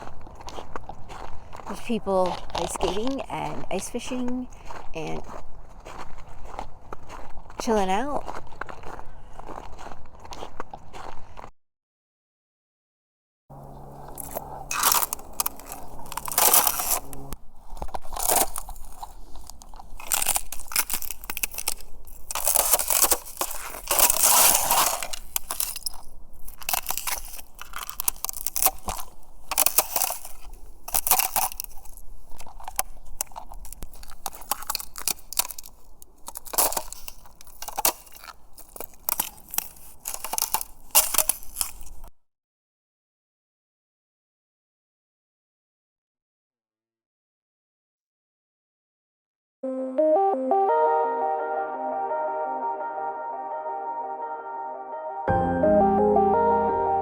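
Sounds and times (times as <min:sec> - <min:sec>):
footsteps crunching through snow: 0:00.0 - 0:11.5, 0:13.6 - 0:42.1.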